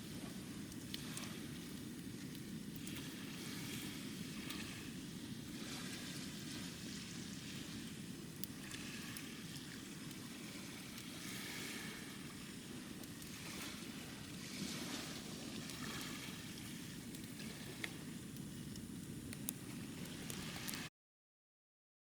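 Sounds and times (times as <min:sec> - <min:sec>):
small waves washing onto sand: 0:00.0 - 0:18.7, 0:19.4 - 0:20.9
faint sharp clicks: 0:18.7 - 0:19.6.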